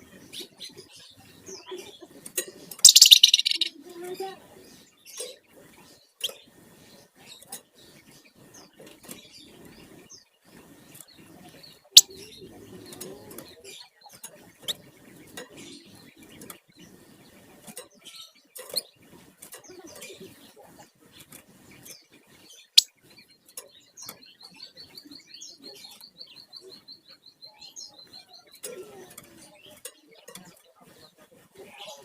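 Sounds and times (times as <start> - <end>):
songbird chattering and rattling: 0.0 - 32.0
sharp clicks: 2.8 - 3.7.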